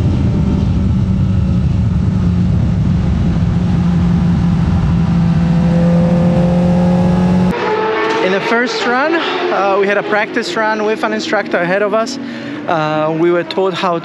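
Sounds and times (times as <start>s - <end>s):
motorcycle engine running: 0.0s - 7.5s
wind rushing over microphone: 0.0s - 7.5s.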